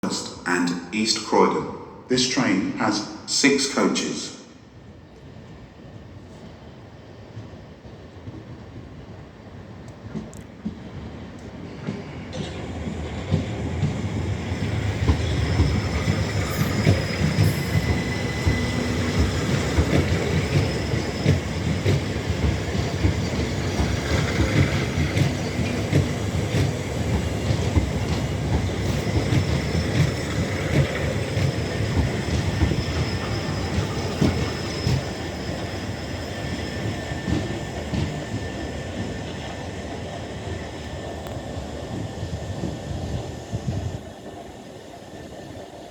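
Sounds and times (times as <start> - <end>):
train rumbling: 0.0 - 45.9
high wheel squeals: 14.6 - 38.9.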